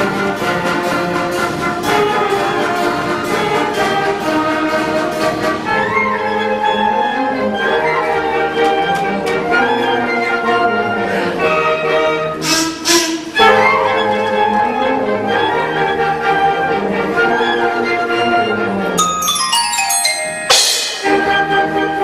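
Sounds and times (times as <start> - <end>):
concert band playing: 19.0 - 21.8.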